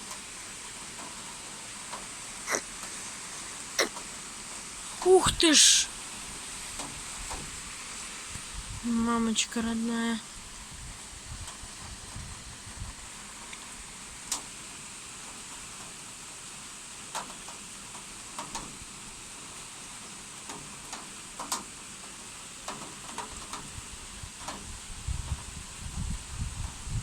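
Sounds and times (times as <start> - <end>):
raindrops tapping nearby: 0.0 - 16.4, 17.0 - 27.0
heavy rain hissing: 0.0 - 27.0
wind rumble on microphone: 8.3 - 9.2, 10.3 - 13.2, 23.6 - 27.0.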